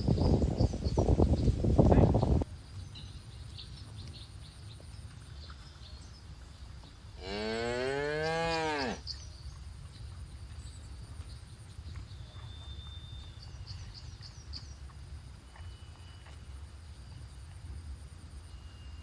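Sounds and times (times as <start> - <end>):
cow mooing: 7.2 - 9.0.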